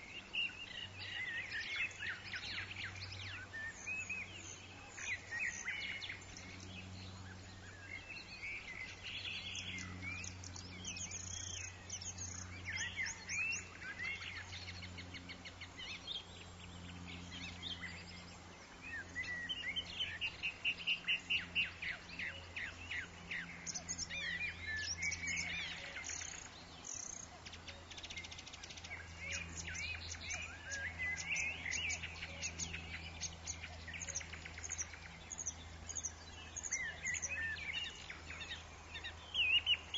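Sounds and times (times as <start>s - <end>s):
birds chirping and whistling: 0.0s - 39.9s
steady low hum: 0.0s - 39.9s.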